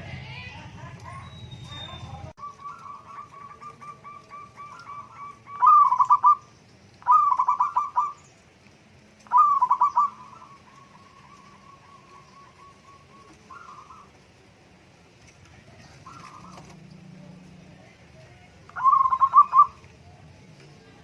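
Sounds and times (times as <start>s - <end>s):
dove cooing: 1.0s - 8.2s, 9.2s - 14.4s, 15.6s - 17.3s, 18.3s - 20.3s.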